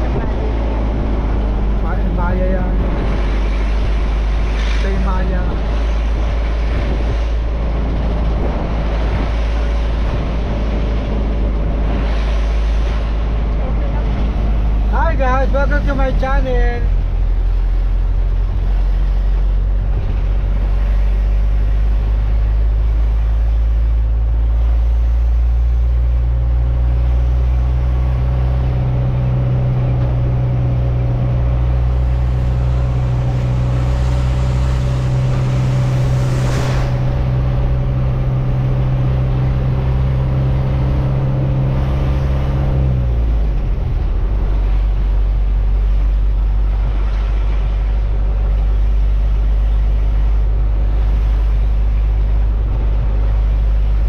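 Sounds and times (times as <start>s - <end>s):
truck engine droning: 0.0s - 54.0s
short rushing sound: 32.0s - 39.6s.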